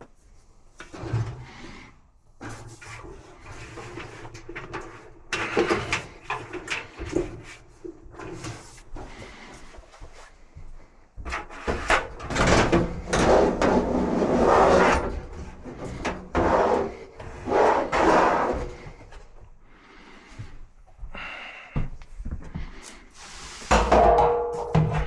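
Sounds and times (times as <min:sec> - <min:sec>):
parts scraping and sliding: 0:11.3 - 0:19.2, 0:22.9 - 0:23.9
sharp knocks and clunks: 0:23.7 - 0:25.0.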